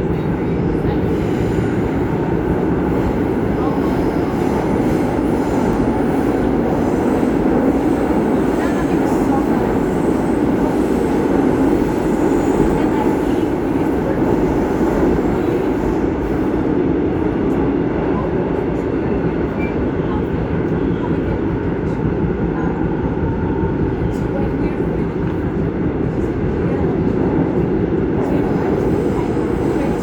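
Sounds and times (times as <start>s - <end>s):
subway train running: 0.0s - 30.0s.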